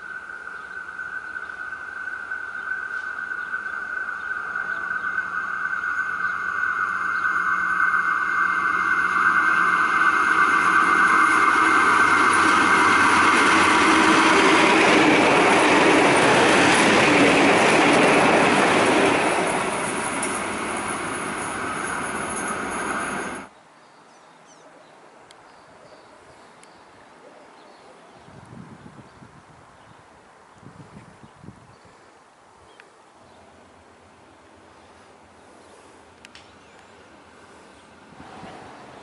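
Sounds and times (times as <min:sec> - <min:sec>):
high ringing: 0:00.0 - 0:23.5
diesel railcar passing: 0:00.0 - 0:23.6, 0:33.4 - 0:39.0.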